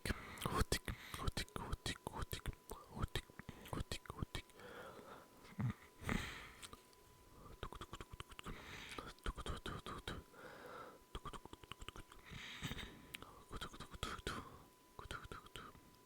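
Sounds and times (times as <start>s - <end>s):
soft breathing: 2.8s - 7.8s, 8.4s - 9.2s, 9.8s - 11.1s, 12.1s - 14.8s
wet tongue and lip clicks: 7.6s - 9.6s, 11.2s - 12.3s.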